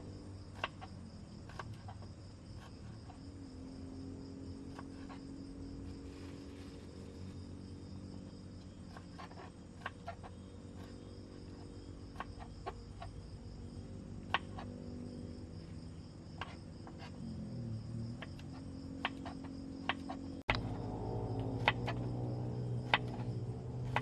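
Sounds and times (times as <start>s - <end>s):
insects droning: 0.0s - 24.0s
sharp clicks and knocks: 18.2s - 20.7s, 21.4s - 22.1s, 22.8s - 24.0s.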